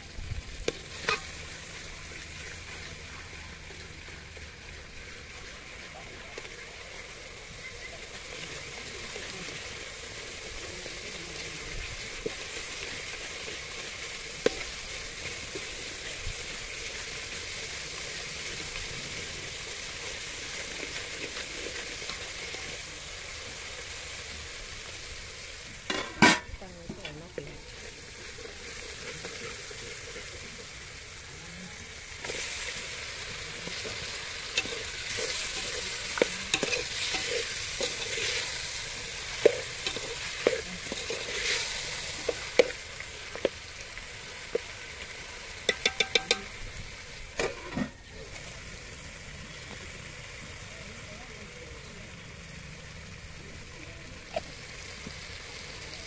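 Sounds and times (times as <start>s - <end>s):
curry sizzling in oil: 0.0s - 56.0s
ladle scraping and clinking pot: 25.9s - 26.6s, 34.5s - 38.6s, 39.3s - 43.6s, 45.7s - 46.5s, 47.4s - 48.0s.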